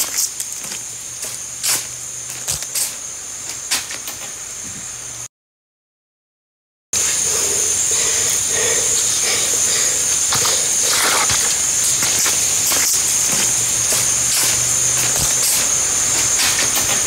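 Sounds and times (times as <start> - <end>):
chorus of calling animals: 7.0 - 17.0.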